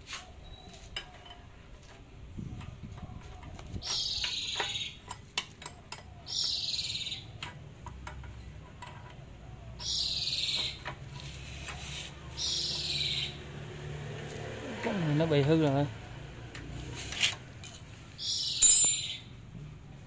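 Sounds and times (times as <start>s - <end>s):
bird harsh calls: 3.8s - 5.1s, 6.1s - 7.4s, 9.7s - 13.4s, 18.1s - 19.3s.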